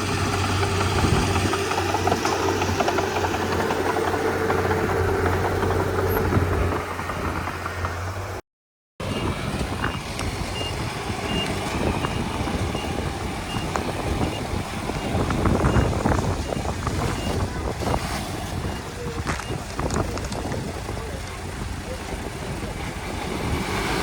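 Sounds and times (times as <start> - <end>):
bulldozer diesel engine running: 0.0 - 8.4, 9.0 - 24.0
reversing alarm beeps: 10.6 - 17.4.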